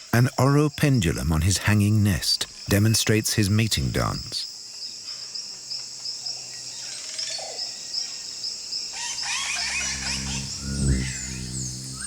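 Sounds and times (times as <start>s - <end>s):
insects chirping: 0.0s - 12.0s
bird calls: 9.0s - 12.0s.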